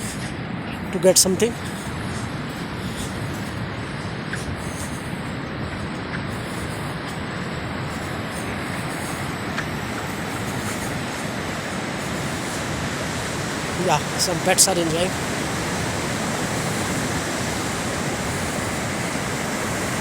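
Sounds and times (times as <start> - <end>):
sea surf on beach: 5.2 - 20.0.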